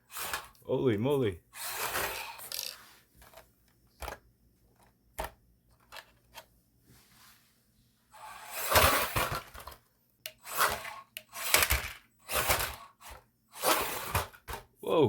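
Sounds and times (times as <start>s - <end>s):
toy car clattering and rattling: 1.6s - 3.4s, 8.2s - 14.7s.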